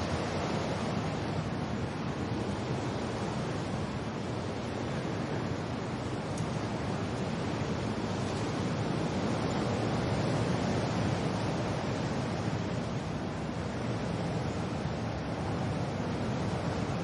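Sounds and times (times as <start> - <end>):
rain: 0.0 - 17.0
rushing wind: 0.0 - 17.0.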